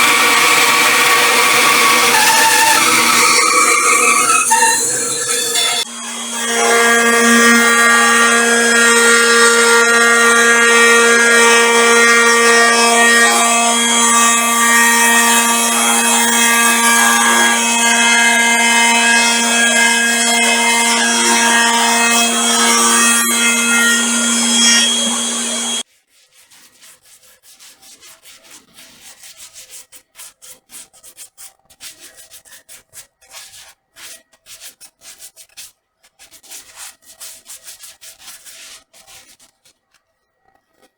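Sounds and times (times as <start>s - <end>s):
power tool working wood: 0.0s - 25.8s.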